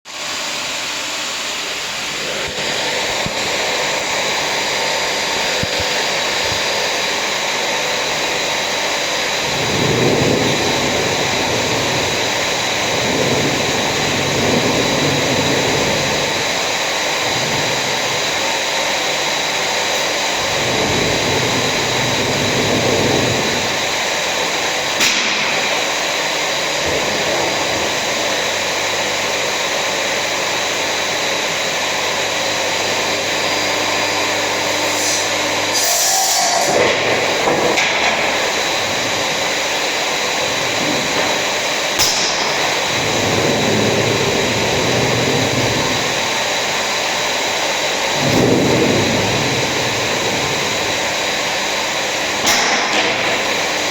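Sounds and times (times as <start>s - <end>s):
motor-driven machine running: 0.3s - 53.9s
heavy low rumble: 5.4s - 30.0s, 36.9s - 53.9s.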